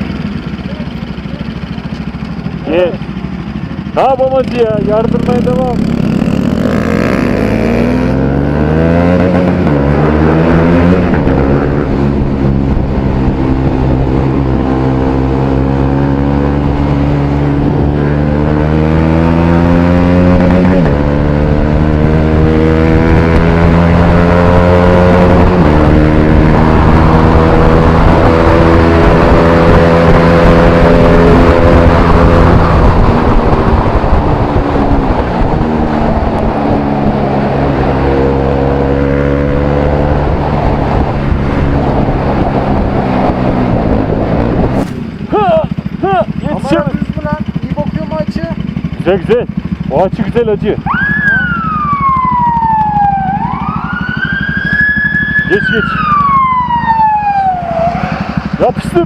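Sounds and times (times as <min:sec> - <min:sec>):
motorcycle engine revving through gears: 0:00.0 - 0:59.0.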